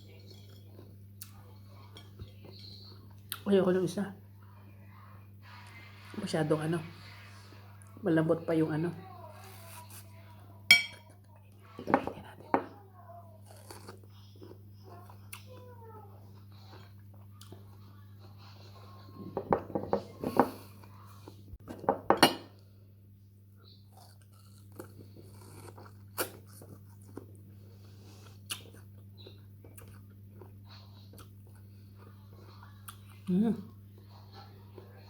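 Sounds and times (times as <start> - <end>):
wet biting and chewing: 23.9 - 27.4.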